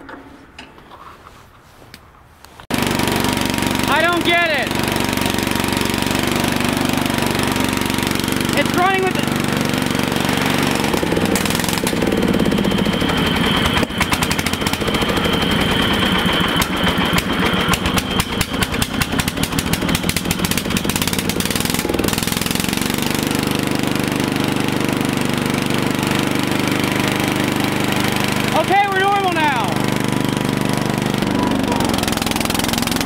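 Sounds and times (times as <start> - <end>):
engine running unevenly: 2.7 - 33.0
engine popping and knocking: 10.3 - 23.4, 27.8 - 33.0.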